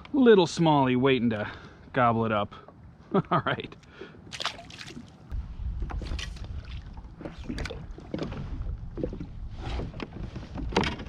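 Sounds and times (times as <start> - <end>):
water splashing against kayak: 4.3 - 11.0
low rumble: 5.3 - 10.4.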